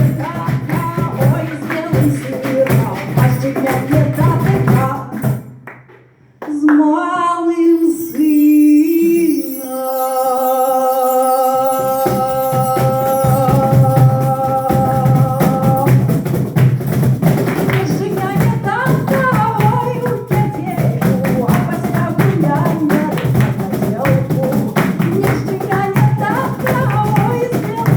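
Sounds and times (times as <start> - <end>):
fast rhythmic accompaniment: 0.0 - 6.2, 7.6 - 27.9
person singing long note: 7.3 - 16.1.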